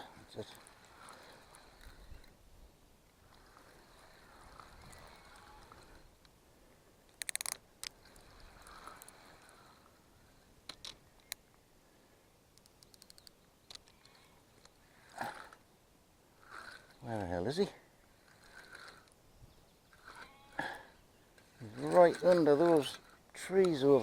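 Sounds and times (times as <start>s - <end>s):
fishing reel clicking: 7.1s - 9.7s, 12.6s - 14.2s.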